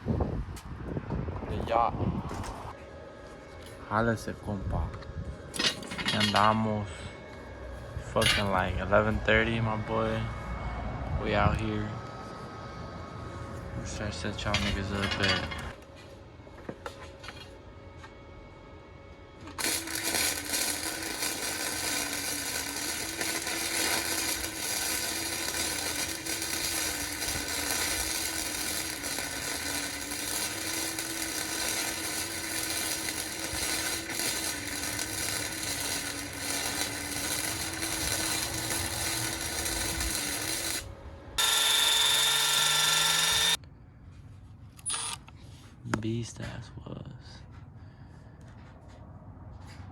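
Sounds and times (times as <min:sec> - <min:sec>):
steady whine with rising tone: 0:00.7 - 0:43.6
power tool whirring: 0:19.4 - 0:43.6, 0:44.8 - 0:45.3.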